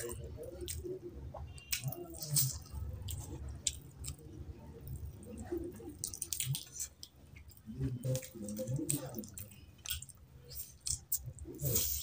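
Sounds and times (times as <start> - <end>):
wet squishy chewing: 0.0 - 12.0
hands tearing chicken: 5.6 - 7.1.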